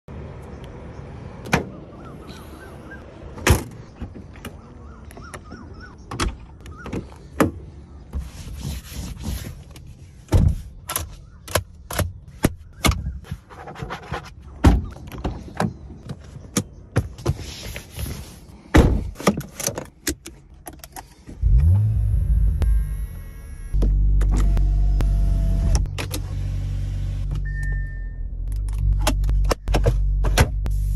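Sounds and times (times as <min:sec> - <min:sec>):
sharp clicks and thunks from car: 0:09.2 - 0:17.9, 0:28.4 - 0:30.7.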